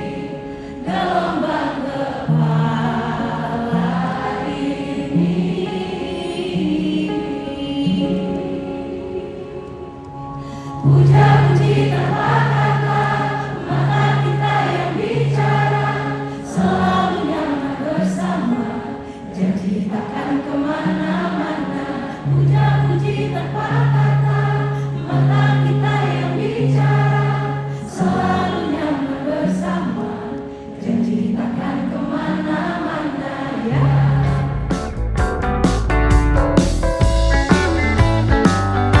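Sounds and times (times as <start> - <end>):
woman singing: 0.0 - 10.0, 13.7 - 34.1
audience singing along: 0.0 - 35.0
bass line: 34.0 - 39.0.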